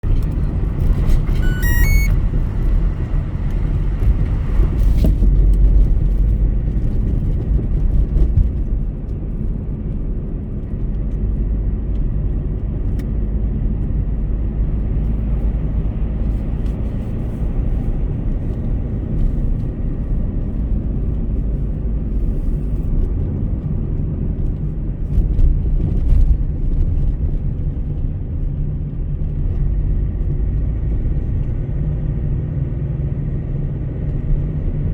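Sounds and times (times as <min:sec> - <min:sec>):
car driving at highway speed: 0:00.0 - 0:34.9
short electronic beeps: 0:01.2 - 0:02.2.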